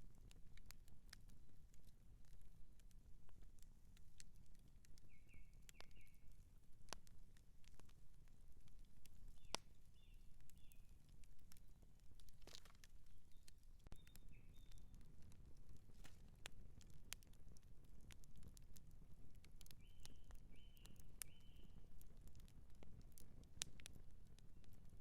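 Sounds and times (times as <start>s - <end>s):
campfire crackling and popping: 0.0s - 25.0s
low rumble of burning wood: 0.0s - 25.0s.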